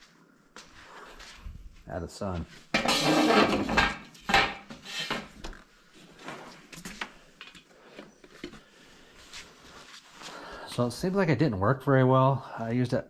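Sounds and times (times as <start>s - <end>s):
heat plate knocking and clattering: 2.7s - 5.3s.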